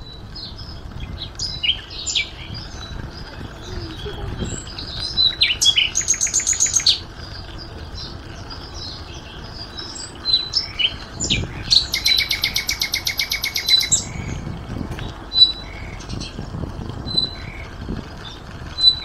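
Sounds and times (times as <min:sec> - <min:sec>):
songbirds trilling: 0:00.0 - 0:19.0.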